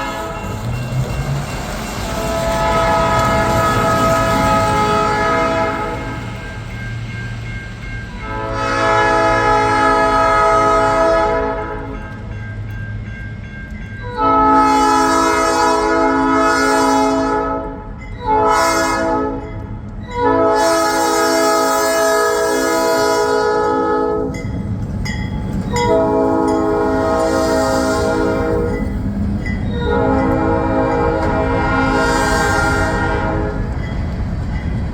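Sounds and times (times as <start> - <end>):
locomotive air horn blasts: 0.0 - 0.5, 2.0 - 6.3, 8.2 - 11.9, 14.1 - 19.5, 20.2 - 24.4, 25.8 - 28.8, 29.8 - 33.7.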